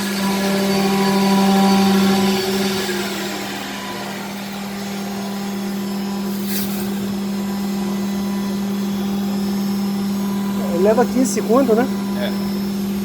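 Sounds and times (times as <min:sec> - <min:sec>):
suction motor humming: 0:00.0 - 0:13.0.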